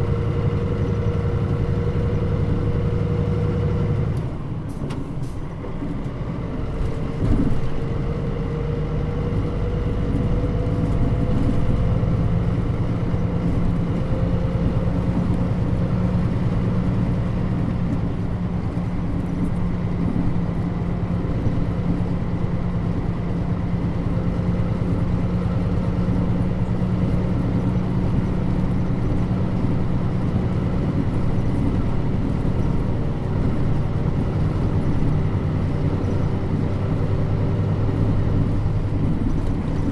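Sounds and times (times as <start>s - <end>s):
bus diesel engine running: 0.0s - 39.9s
road noise: 0.0s - 39.9s.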